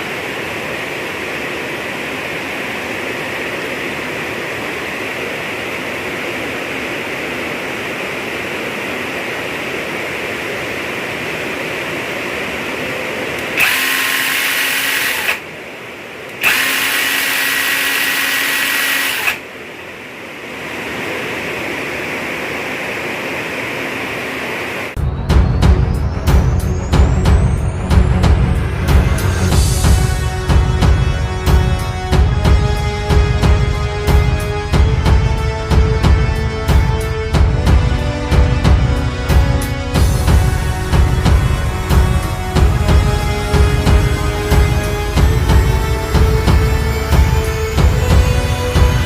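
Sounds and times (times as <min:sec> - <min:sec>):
electric chainsaw motor whine: 0:13.4 - 0:15.5, 0:16.3 - 0:19.5.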